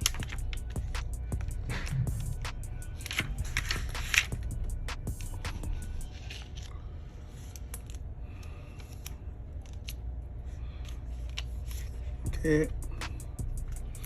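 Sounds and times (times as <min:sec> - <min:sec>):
laptop parts clicking: 0:00.0 - 0:06.7, 0:07.4 - 0:10.1
steady low hum: 0:00.0 - 0:14.0.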